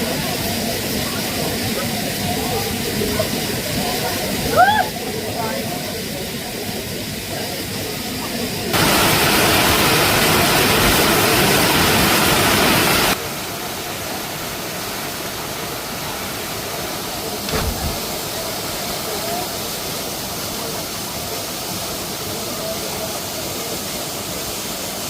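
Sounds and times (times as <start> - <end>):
waterfall rushing: 0.0 - 25.0
low knock: 17.5 - 18.2.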